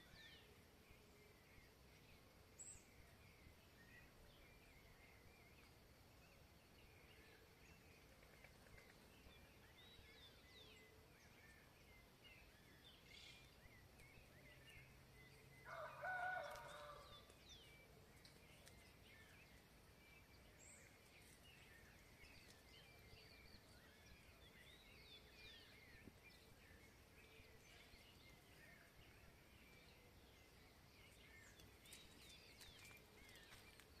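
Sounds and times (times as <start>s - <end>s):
songbirds chirping and trilling: 0.0s - 34.0s
rooster crowing: 15.6s - 17.2s.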